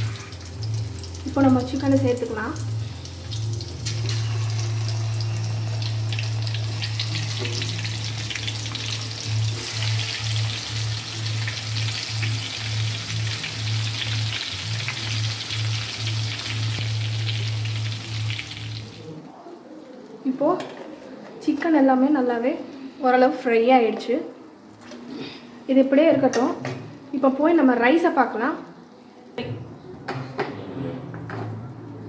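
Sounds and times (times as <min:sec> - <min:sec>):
chicken frying in hot oil: 0:00.0 - 0:19.1.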